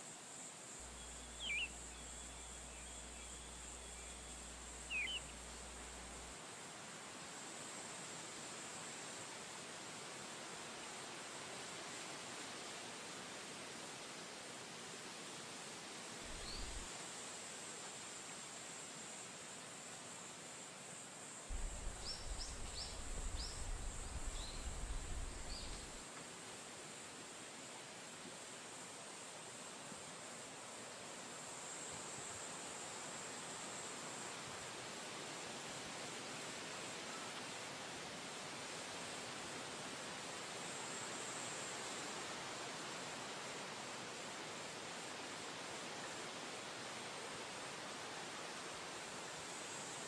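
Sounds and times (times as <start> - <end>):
high outdoor background hiss: 0.0 - 50.0
low wind rumble on microphone: 16.3 - 16.9, 21.5 - 26.0.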